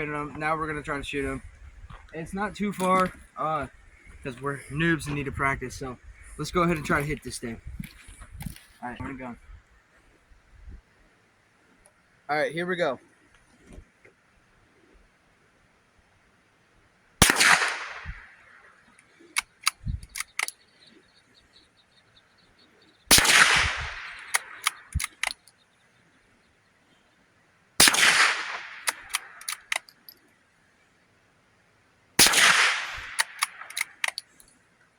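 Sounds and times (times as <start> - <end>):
gunshots: 17.2 - 18.3, 23.1 - 25.4, 27.8 - 29.9, 32.2 - 34.2
gun action metallic clicks: 19.4 - 20.6, 23.1 - 25.6, 27.8 - 30.2, 32.2 - 34.5.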